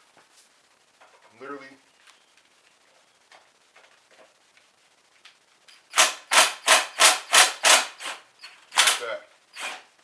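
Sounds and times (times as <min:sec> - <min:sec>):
impact wrench bursts: 0:05.8 - 0:09.9.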